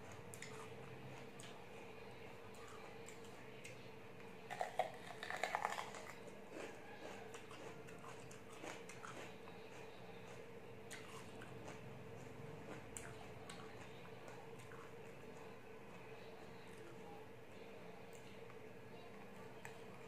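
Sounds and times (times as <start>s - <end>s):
wet chewing: 0.0s - 1.6s, 4.5s - 15.5s.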